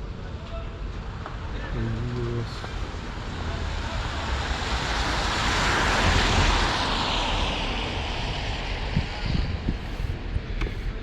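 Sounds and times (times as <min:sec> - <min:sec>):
vehicle passing by: 0:03.1 - 0:10.1.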